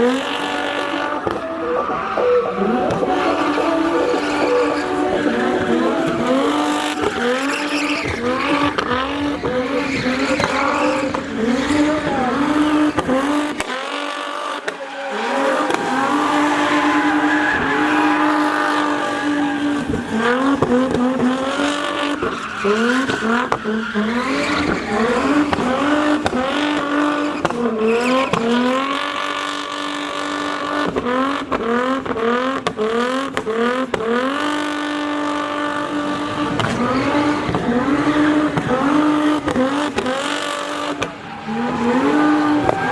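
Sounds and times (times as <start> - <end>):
car engine revving high: 0.0 - 42.9
tyres squealing: 1.5 - 28.8, 36.4 - 42.9.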